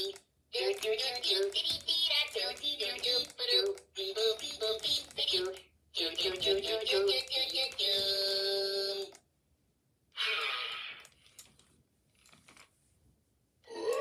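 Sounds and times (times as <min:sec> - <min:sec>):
toy electronic voices: 0:00.0 - 0:09.2, 0:10.2 - 0:11.4, 0:13.7 - 0:14.0.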